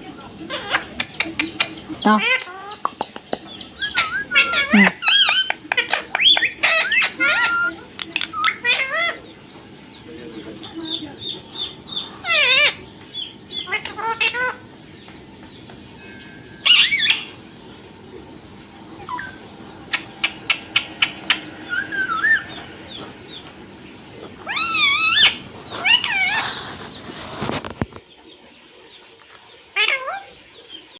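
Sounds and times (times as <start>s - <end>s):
parrot wavering calls: 3.6s - 9.4s, 10.6s - 14.8s, 15.9s - 17.7s, 18.6s - 27.0s.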